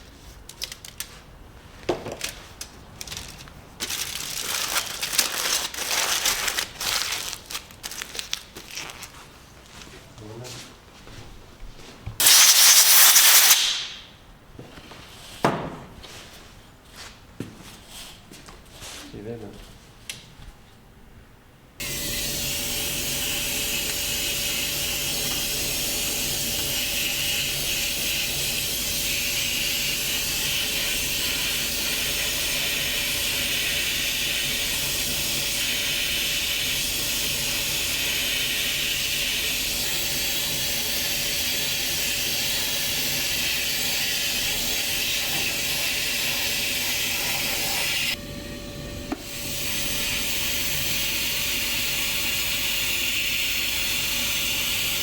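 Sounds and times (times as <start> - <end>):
loud compressed air hiss: 12.2 - 14.2, 21.8 - 48.2.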